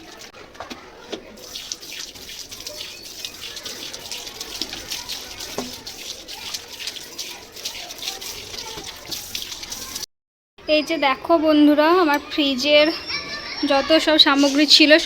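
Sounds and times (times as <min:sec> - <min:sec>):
tap water running and splashing: 0:00.0 - 0:10.1.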